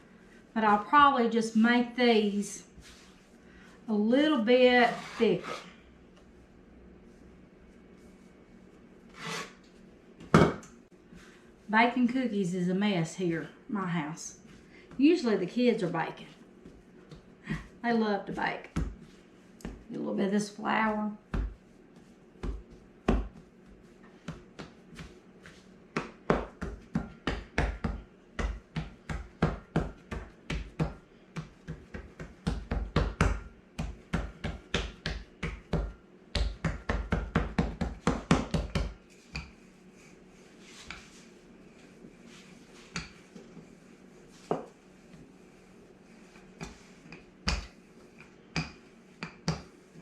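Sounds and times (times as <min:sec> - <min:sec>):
hands patting dough: 0:14.4 - 0:50.0.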